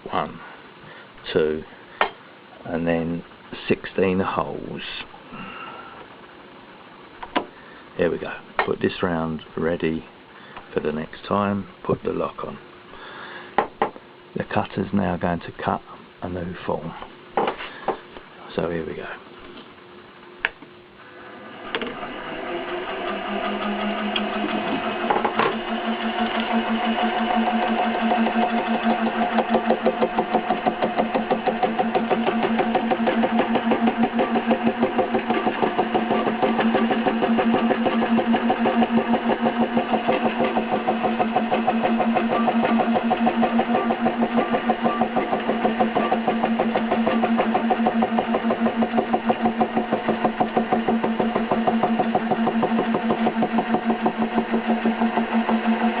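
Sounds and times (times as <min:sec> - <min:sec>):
milling machine humming: 0:21.0 - 0:56.0.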